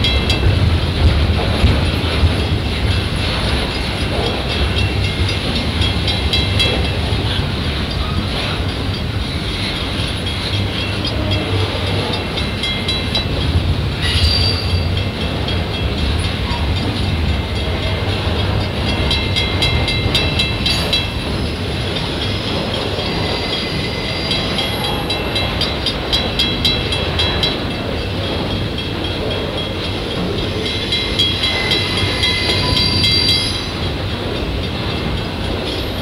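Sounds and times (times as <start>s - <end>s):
steel wheels rumbling on rail: 0.0s - 36.0s
high wheel squealing: 30.6s - 33.7s.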